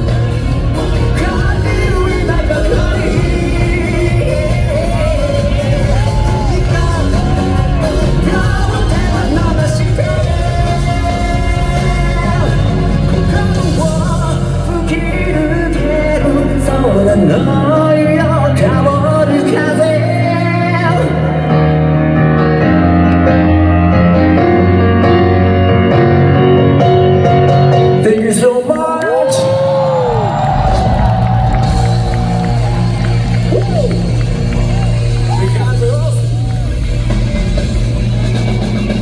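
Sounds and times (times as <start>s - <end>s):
man singing lead vocal: 0.0s - 22.5s, 27.9s - 30.9s
live rock band playing: 0.0s - 28.7s, 29.3s - 39.0s.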